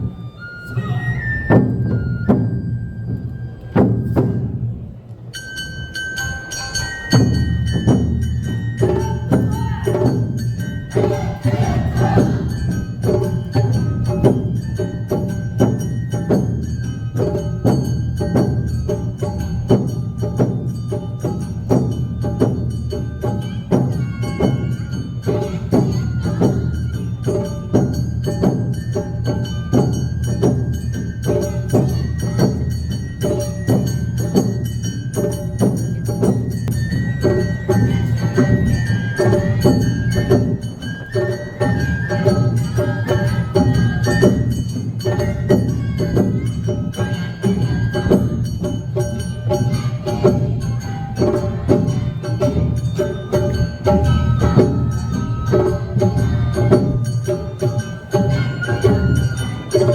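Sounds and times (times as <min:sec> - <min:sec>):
bamboo flute playing: 0:00.0 - 0:04.6, 0:36.7 - 0:48.4, 0:57.5 - 0:59.9
festival drums: 0:00.0 - 0:59.9.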